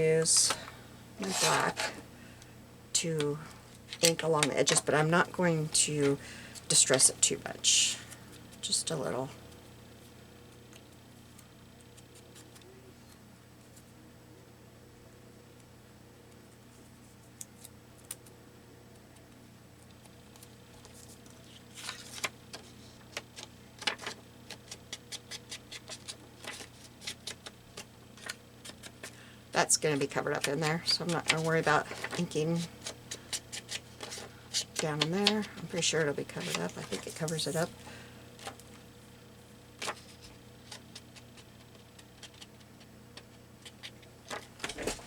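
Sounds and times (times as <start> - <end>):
faint low hum: 0.0 - 45.0.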